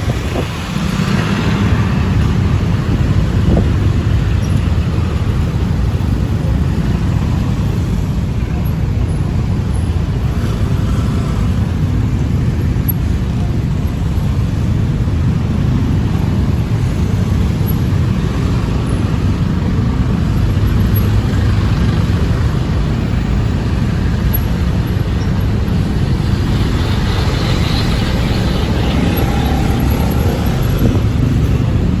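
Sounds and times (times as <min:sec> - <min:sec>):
city road traffic rumble: 0:00.0 - 0:32.0
vehicles passing: 0:00.0 - 0:32.0.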